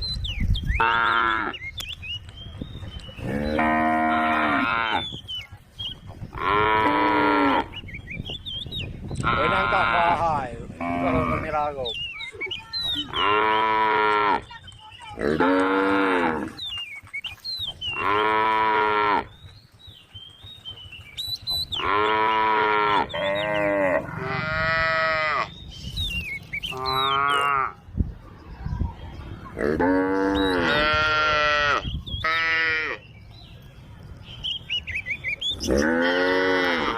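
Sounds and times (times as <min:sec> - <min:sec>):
cow mooing: 0:10.8 - 0:11.5, 0:18.0 - 0:19.3, 0:21.8 - 0:25.5, 0:29.6 - 0:33.0, 0:35.7 - 0:36.9.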